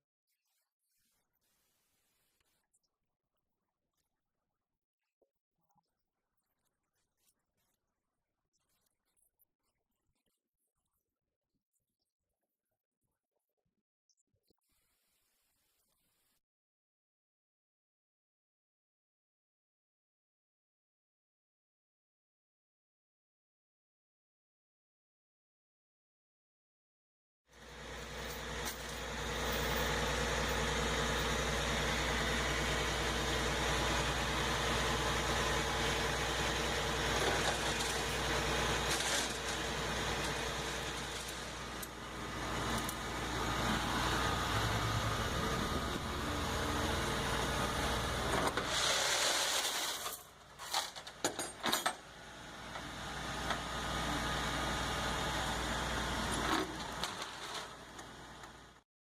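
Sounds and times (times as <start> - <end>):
motor vehicle hum: 27.7 - 49.1, 52.2 - 58.8.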